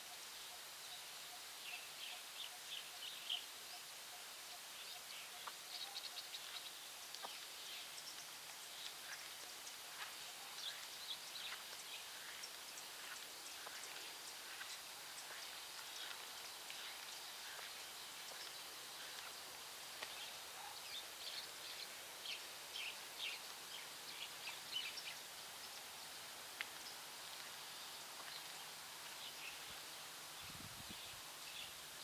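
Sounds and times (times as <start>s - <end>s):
faint outdoor hiss: 0.0s - 32.0s
small birds chirping: 0.0s - 32.0s.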